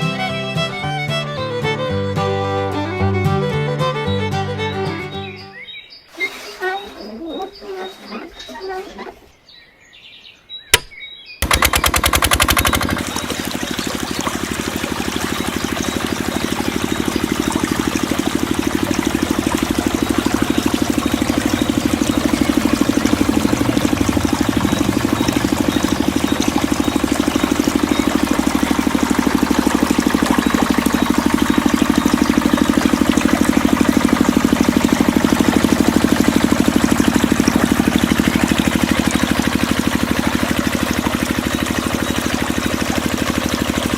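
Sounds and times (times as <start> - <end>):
small engine running: 11.4 - 43.9.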